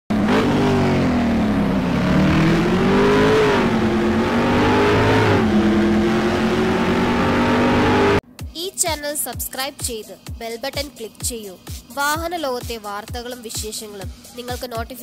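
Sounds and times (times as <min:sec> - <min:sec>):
car engine revving: 0:00.1 - 0:08.2.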